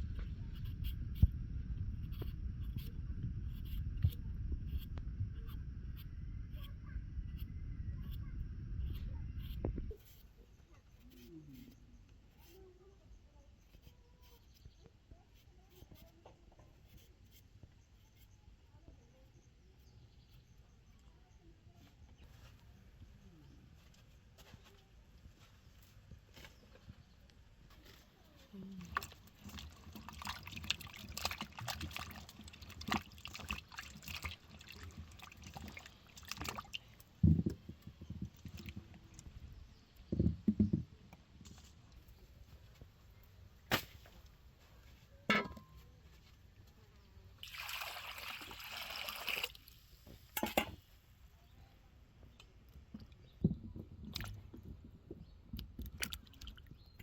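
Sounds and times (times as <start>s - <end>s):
water splashing and trickling: 27.8s - 39.4s, 47.4s - 50.2s, 52.9s - 54.9s, 55.6s - 57.0s
water pouring: 28.8s - 37.2s, 47.4s - 49.8s.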